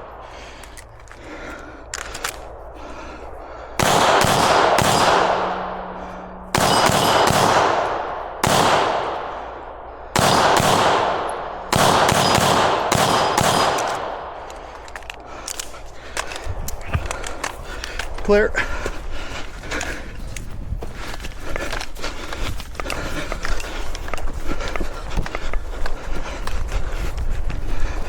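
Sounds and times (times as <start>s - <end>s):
echoing gunshots: 1.4s - 16.4s.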